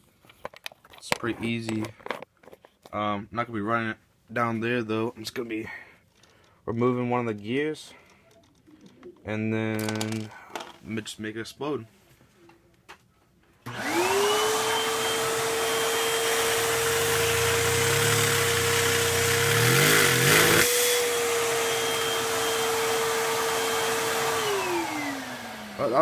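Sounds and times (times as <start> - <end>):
vacuum cleaner running: 13.7 - 26.0.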